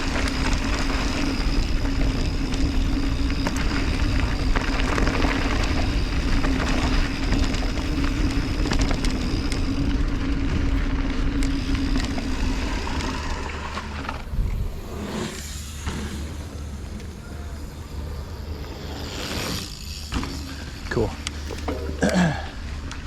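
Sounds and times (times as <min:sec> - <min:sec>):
wind rush on microphone: 0:00.0 - 0:15.3
bike chain and frame rattling: 0:00.0 - 0:23.0
bike tyre noise: 0:00.0 - 0:23.0.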